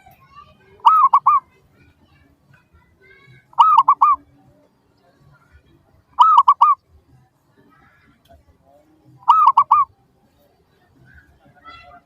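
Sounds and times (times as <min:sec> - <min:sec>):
small birds chirping: 0:00.0 - 0:11.9
dove cooing: 0:00.8 - 0:01.4, 0:03.6 - 0:04.2, 0:06.2 - 0:06.8, 0:09.2 - 0:09.9.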